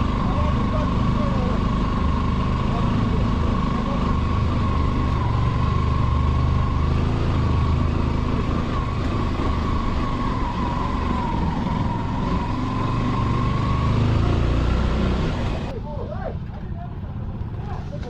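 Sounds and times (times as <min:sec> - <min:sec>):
motorcycle engine humming: 0:00.0 - 0:18.0
high whine: 0:08.6 - 0:11.4.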